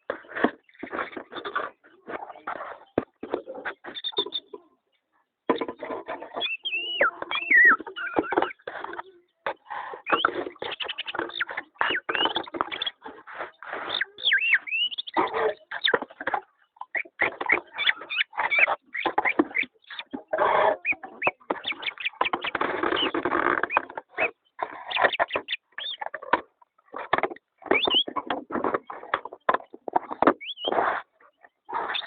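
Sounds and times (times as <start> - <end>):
pet birds chirping: 0.2 - 32.0
gliding bird whistles: 6.4 - 8.6, 13.9 - 15.2, 27.7 - 28.1, 30.4 - 30.7.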